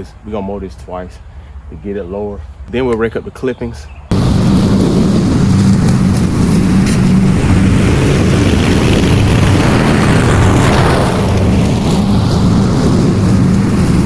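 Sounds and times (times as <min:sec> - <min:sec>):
lawn mower engine running: 0:04.1 - 0:14.0.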